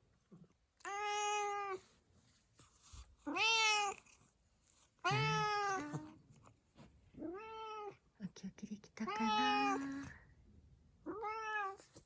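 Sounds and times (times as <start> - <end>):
cat meowing: 3.3 - 4.0, 5.1 - 6.2, 9.1 - 9.9, 11.1 - 11.9.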